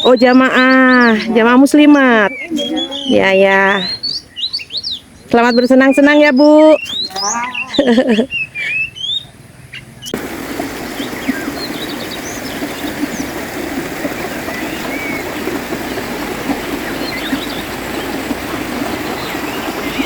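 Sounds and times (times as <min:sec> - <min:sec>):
birds chirping: 0:00.0 - 0:20.0
river flowing: 0:10.2 - 0:20.0.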